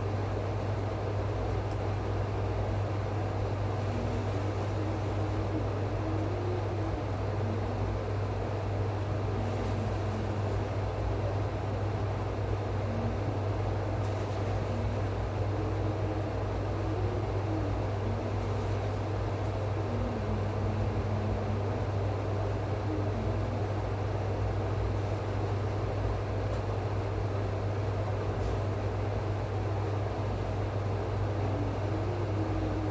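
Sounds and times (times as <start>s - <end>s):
low machine hum: 0.0s - 32.9s
faint wavering tones: 12.3s - 25.3s, 30.9s - 32.9s.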